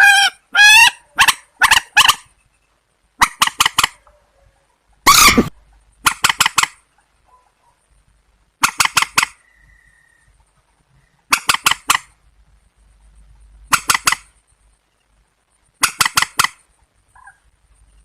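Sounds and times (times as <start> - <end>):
loud downward sliding bird call: 0.0 - 2.3, 5.0 - 6.8
waterbirds harsh calls: 5.1 - 5.5.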